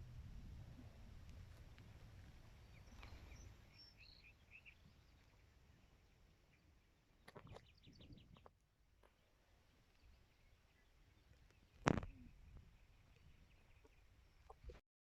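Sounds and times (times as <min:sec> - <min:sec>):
faint small bird chirps: 0:02.6 - 0:05.8, 0:06.5 - 0:08.5, 0:09.9 - 0:14.8.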